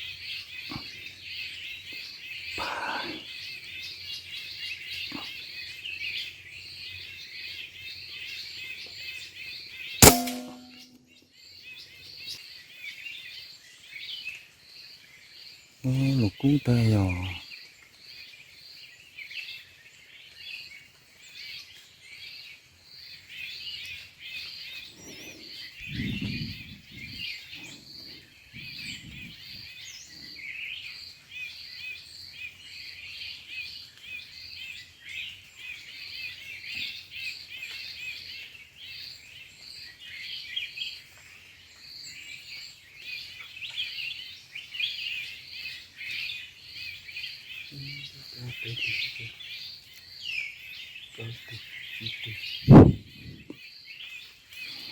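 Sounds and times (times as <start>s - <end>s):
birds chirping and calling: 0.0s - 7.0s, 15.9s - 17.4s, 23.9s - 30.9s, 43.2s - 54.9s
high repeating bird note: 10.0s - 10.9s
low muffled sound: 52.7s - 53.5s.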